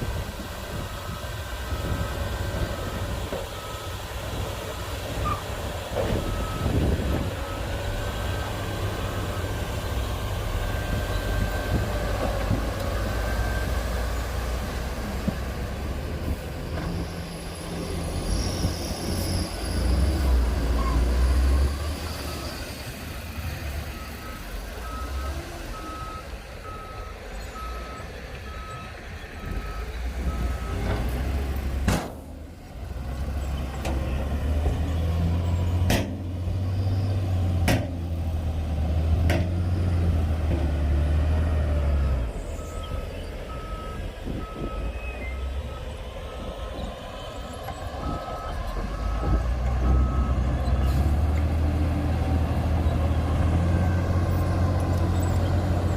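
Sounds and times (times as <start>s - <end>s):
diesel engine running: 0.0s - 55.9s
reversing alarm beeping: 6.1s - 7.8s, 18.9s - 30.9s, 41.4s - 50.6s.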